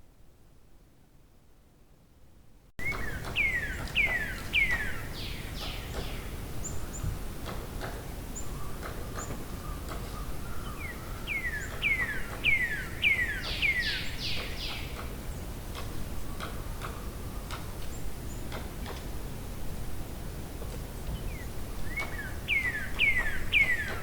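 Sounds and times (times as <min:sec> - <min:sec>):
background hiss: 0:00.0 - 0:24.0
bird singing: 0:02.8 - 0:07.1, 0:08.1 - 0:15.5, 0:21.1 - 0:24.0
bird chirps and ticks: 0:02.8 - 0:19.1, 0:20.7 - 0:24.0.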